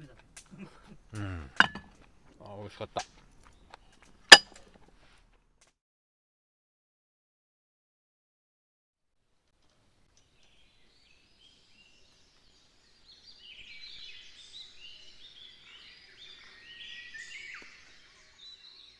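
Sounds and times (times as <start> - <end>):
faint outdoor hiss: 0.0 - 5.7, 9.1 - 18.9
birds chirping and trilling: 10.4 - 18.9.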